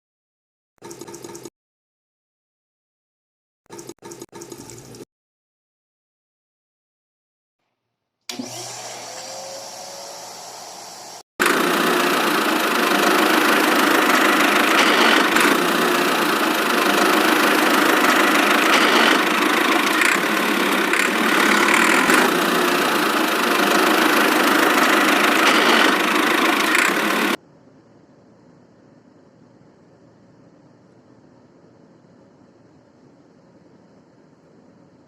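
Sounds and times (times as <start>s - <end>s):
small engine running: 8.3s - 27.4s.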